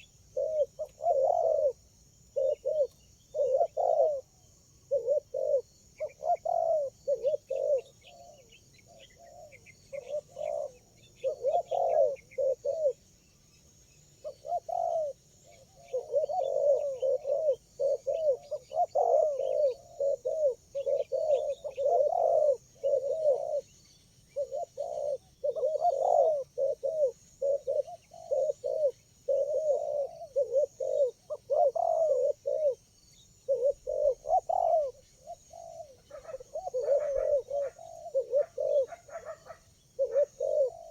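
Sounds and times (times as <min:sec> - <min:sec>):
doves cooing: 0:00.0 - 0:13.1, 0:14.0 - 0:40.9.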